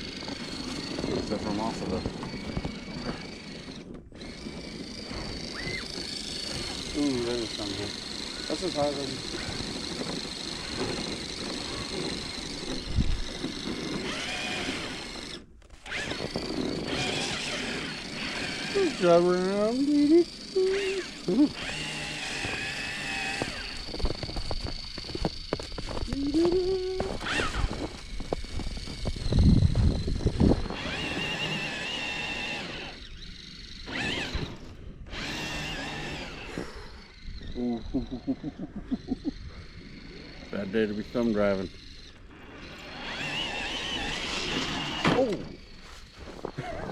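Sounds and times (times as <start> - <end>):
electric motor and gears whining: 0.0 - 46.9
wind noise: 9.1 - 19.0, 22.3 - 35.8.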